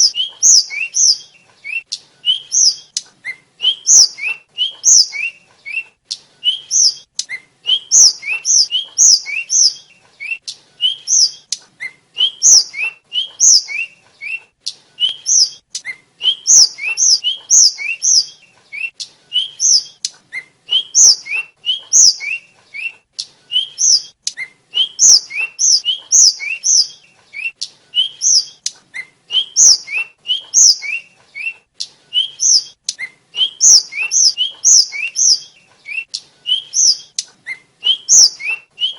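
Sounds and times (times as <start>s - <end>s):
flycatcher whistled song: 0.0s - 38.9s.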